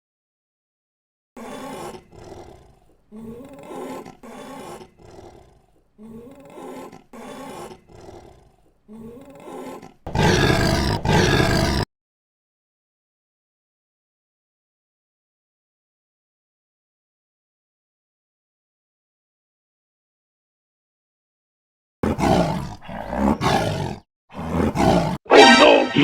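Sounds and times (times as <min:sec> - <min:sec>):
big cat roaring: 0:01.4 - 0:11.9, 0:22.0 - 0:25.3.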